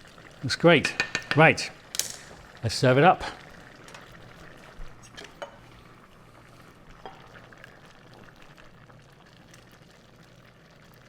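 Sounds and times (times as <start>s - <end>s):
stew bubbling at a simmer: 0.0s - 11.0s.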